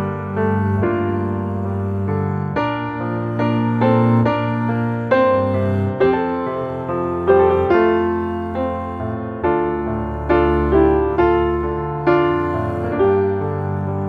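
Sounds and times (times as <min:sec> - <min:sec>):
gentle piano chords: 0:00.0 - 0:14.0.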